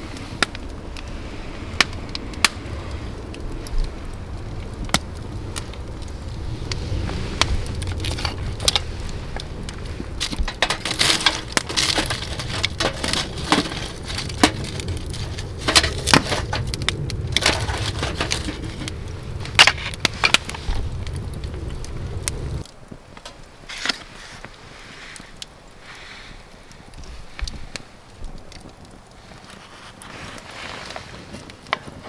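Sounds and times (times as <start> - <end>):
firewood cracking and splitting: 0.0 - 32.0
steady low rumble: 0.7 - 23.0
scraping crunches: 7.3 - 22.6.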